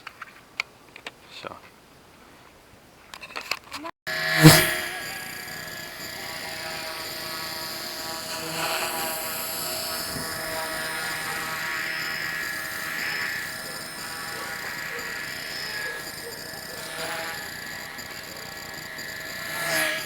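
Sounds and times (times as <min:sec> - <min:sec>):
rc helicopter motor whining: 0:04.1 - 0:20.0.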